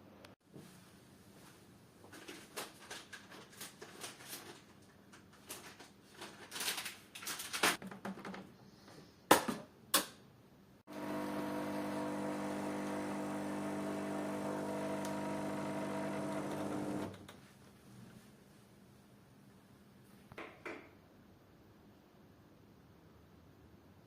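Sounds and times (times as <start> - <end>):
power tool motor hum: 10.9 - 17.2.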